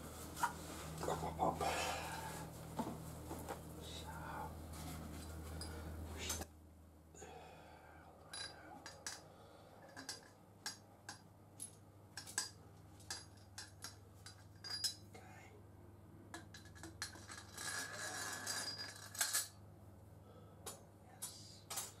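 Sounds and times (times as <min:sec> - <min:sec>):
steady low hum: 0:00.0 - 0:22.0
metal parts clicking and clinking: 0:08.2 - 0:15.1, 0:16.4 - 0:19.6.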